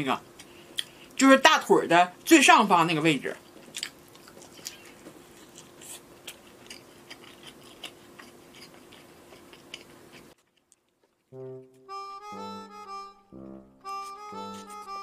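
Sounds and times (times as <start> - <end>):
faint steady hum: 0.0 - 15.0
mouth chewing food: 3.4 - 11.4
harmonica background music: 11.3 - 15.0.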